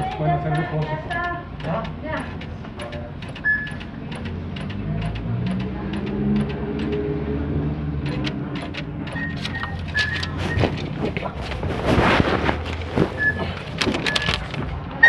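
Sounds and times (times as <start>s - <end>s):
faint regular ticking: 0.0s - 7.2s, 8.0s - 10.4s
short high beeps: 3.4s - 3.8s, 13.2s - 13.4s.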